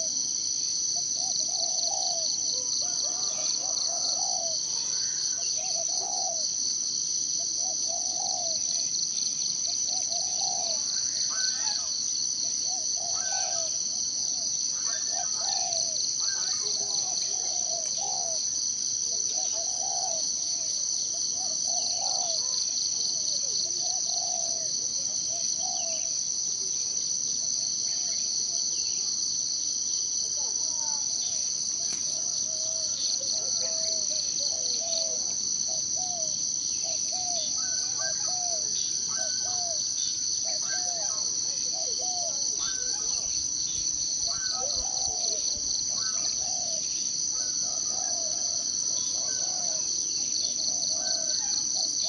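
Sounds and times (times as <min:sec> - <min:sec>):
high-pitched insect chorus: 0:00.0 - 0:52.0.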